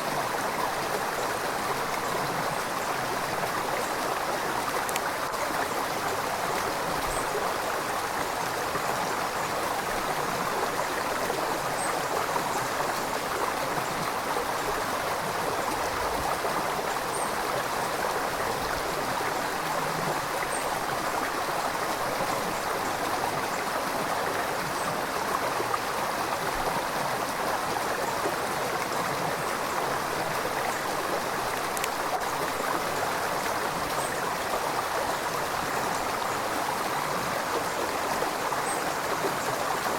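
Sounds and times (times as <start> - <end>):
river water rushing and babbling: 0.0 - 39.9.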